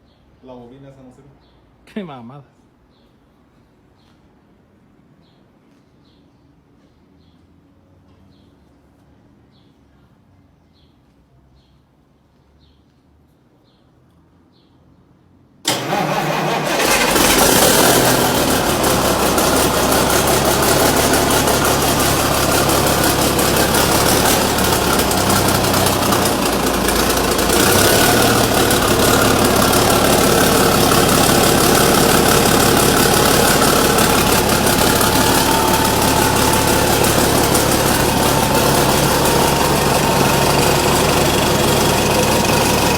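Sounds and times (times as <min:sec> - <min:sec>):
diesel engine starting and running: 0:15.6 - 0:42.9.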